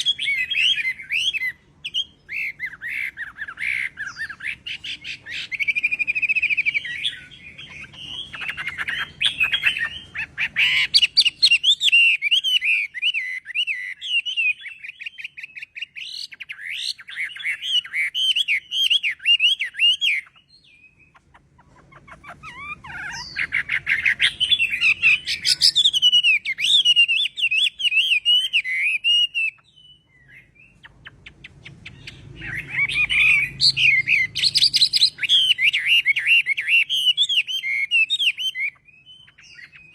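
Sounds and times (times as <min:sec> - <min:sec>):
songbird whistling and trilling: 0:00.0 - 0:39.9.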